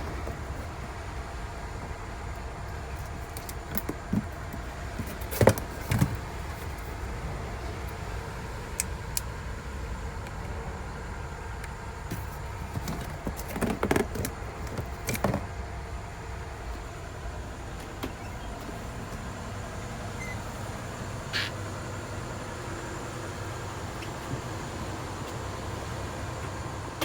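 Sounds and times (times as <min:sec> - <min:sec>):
vehicle hum: 0:00.0 - 0:27.0
clatter of knocks: 0:12.1 - 0:15.5.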